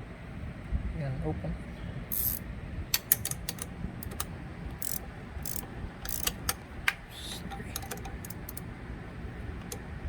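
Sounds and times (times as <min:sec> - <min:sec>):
ratchet wrench clicking: 0:02.1 - 0:06.6, 0:07.3 - 0:08.6
sharp metal clicks: 0:02.1 - 0:08.7.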